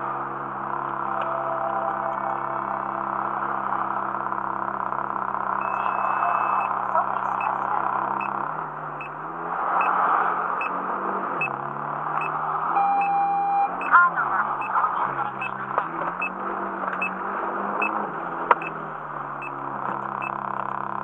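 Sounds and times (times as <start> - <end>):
car engine idling: 0.0 - 21.0
short electronic beep: 5.6 - 8.4, 12.2 - 14.0.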